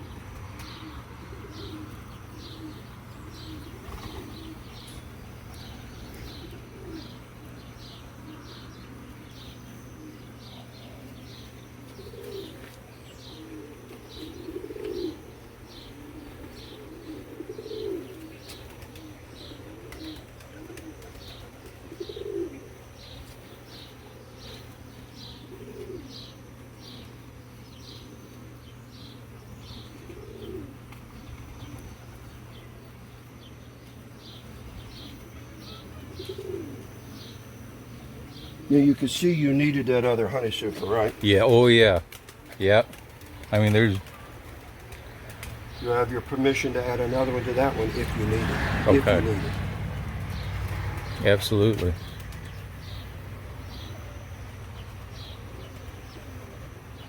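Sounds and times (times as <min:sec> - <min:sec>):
small bird chirping: 0:00.0 - 0:41.7
dove cooing: 0:00.0 - 0:57.0.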